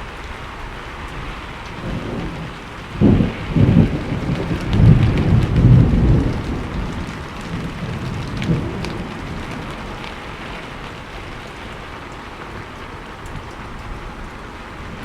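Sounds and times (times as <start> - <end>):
raindrops ticking: 0.0 - 15.0
steady rain falling: 0.0 - 15.0
thunder rolling: 0.7 - 11.1.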